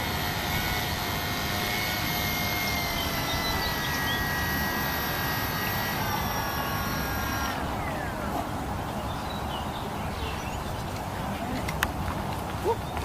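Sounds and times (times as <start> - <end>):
electric motor and propeller whining: 0.0 - 8.9.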